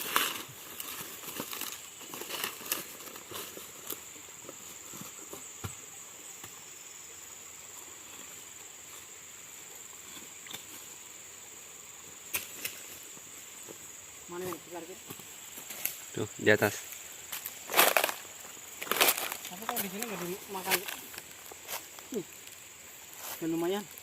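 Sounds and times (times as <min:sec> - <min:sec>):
dry leaves crackling underfoot: 0:00.0 - 0:05.5, 0:16.8 - 0:24.0.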